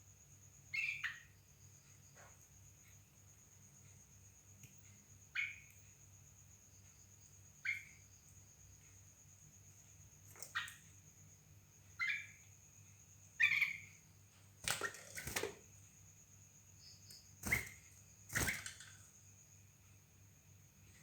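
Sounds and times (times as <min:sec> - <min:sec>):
birds chirping: 0:11.9 - 0:12.5, 0:13.3 - 0:14.0.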